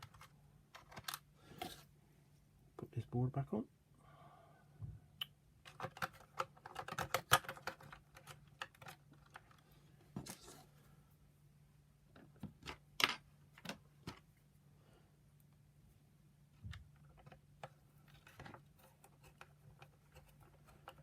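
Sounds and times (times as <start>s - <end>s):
plastic parts clicking and knocking: 0.0s - 1.8s, 5.6s - 9.6s, 12.1s - 14.3s, 16.6s - 21.0s.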